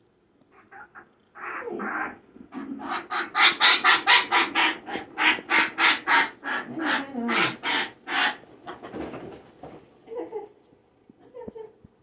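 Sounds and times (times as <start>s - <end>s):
parrot squawking harshly: 2.8s - 8.4s.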